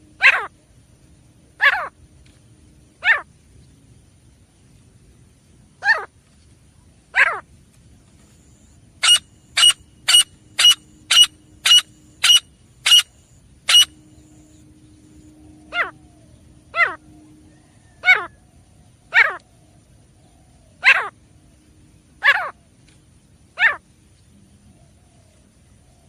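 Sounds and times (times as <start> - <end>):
francolin falling calls: 9.0 - 16.1, 20.8 - 21.2.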